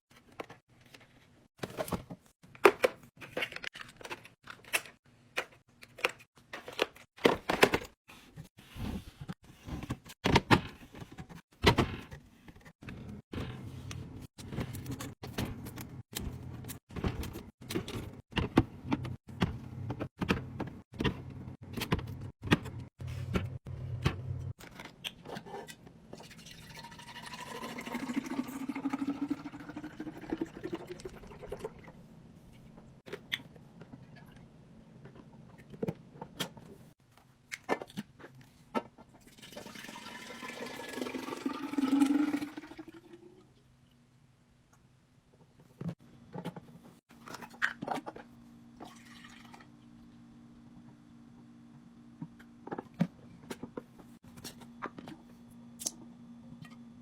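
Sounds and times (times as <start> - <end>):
liquid pouring into container: 26.2 - 31.9, 39.3 - 43.4, 48.8 - 49.8.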